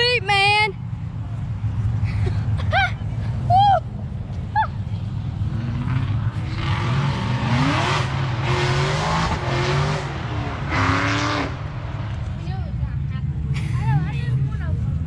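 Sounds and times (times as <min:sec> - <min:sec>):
car engine revving: 0:05.3 - 0:13.5.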